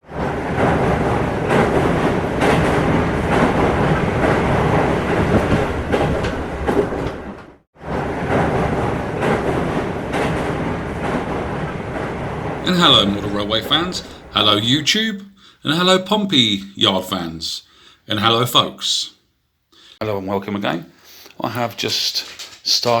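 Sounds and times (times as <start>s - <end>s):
train rumbling along track: 0.0s - 17.0s
rail joint clicks: 0.6s - 7.6s, 9.0s - 14.5s.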